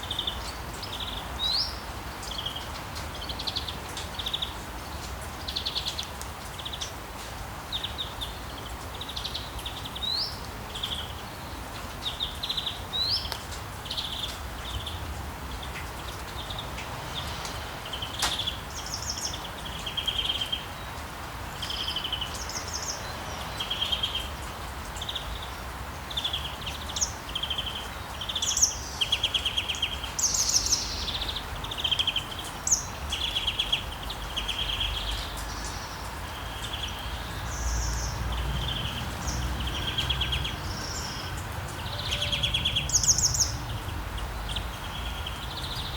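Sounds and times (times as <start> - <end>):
rain hiss: 0.0 - 45.9
songbirds chirping and trilling: 0.0 - 45.9.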